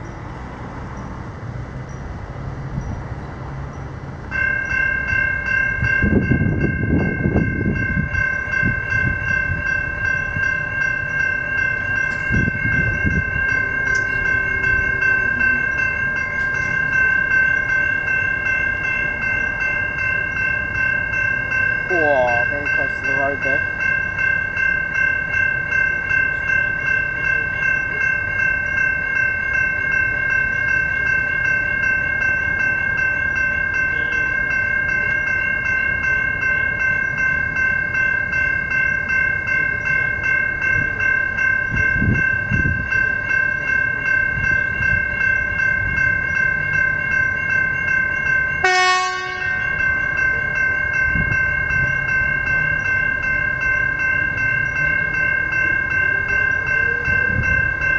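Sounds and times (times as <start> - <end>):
level crossing bells ringing: 0.0 - 57.9
horn blast: 48.6 - 49.6.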